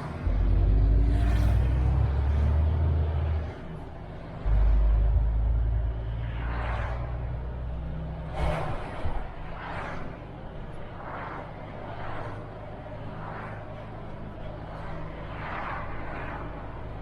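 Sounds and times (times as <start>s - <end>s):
truck engine rumbling: 0.0s - 9.2s.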